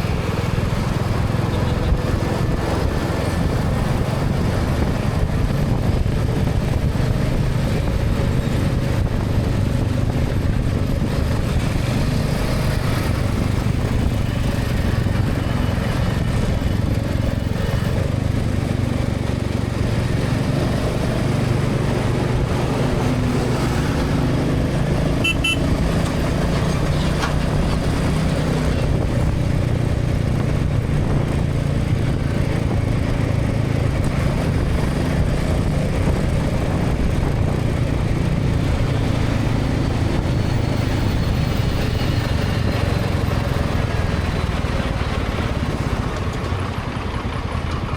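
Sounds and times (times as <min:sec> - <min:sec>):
motorcycle engine cruising: 0:00.0 - 0:47.9
wind and road noise: 0:00.0 - 0:47.9
high repeated beep: 0:25.2 - 0:25.6.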